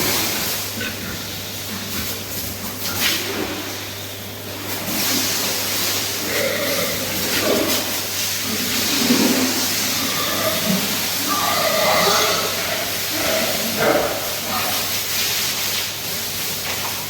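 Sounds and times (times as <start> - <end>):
pigs grunting: 0.0 - 3.9, 6.0 - 15.0
water spray hissing: 0.0 - 17.0.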